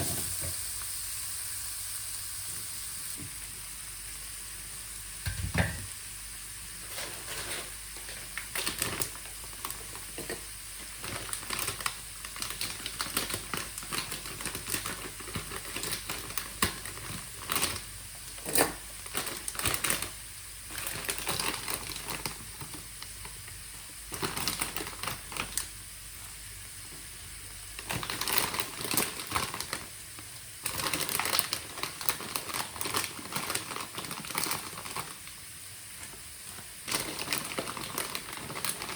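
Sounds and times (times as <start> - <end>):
faint hiss: 0.0 - 14.8.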